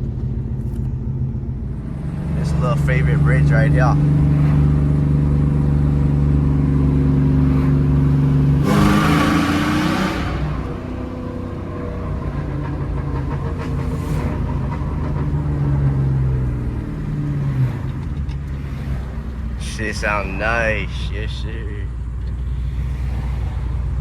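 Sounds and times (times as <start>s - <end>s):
raspy car engine revving: 1.6s - 24.0s.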